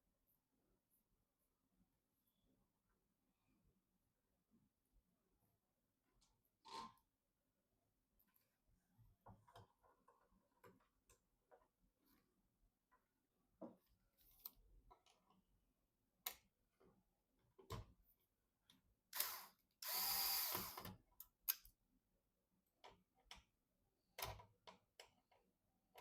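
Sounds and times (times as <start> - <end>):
electric screwdriver whirring: 19.2 - 20.9.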